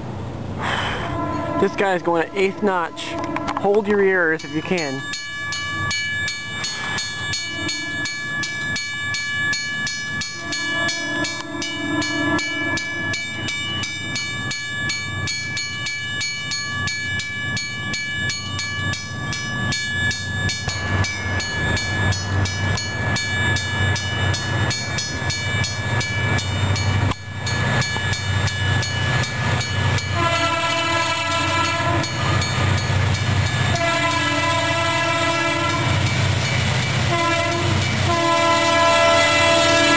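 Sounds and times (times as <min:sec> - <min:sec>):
diesel locomotive engine at full throttle: 0:00.0 - 0:39.9
train air horn blasts: 0:00.6 - 0:03.8, 0:07.4 - 0:08.1, 0:10.4 - 0:13.1, 0:30.1 - 0:32.3, 0:33.7 - 0:36.0, 0:37.1 - 0:39.9.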